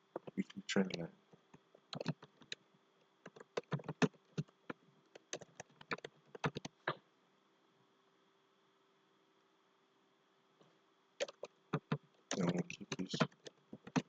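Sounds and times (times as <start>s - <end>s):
faint steady hum: 0.0s - 14.0s
keyboard and mouse clicking: 1.9s - 2.6s, 3.2s - 4.5s, 5.1s - 7.0s, 11.2s - 14.0s.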